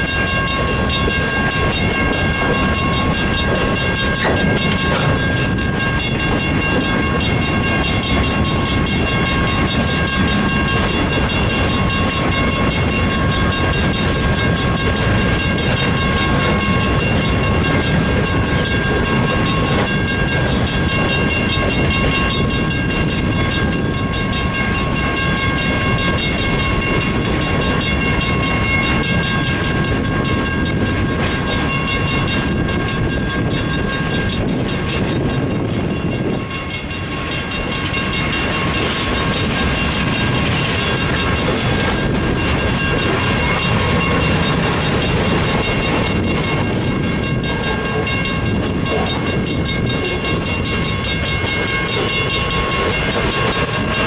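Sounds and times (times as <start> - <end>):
crossing signal bell ringing: 0.0 - 54.0
steel wheels on rails: 0.0 - 54.0.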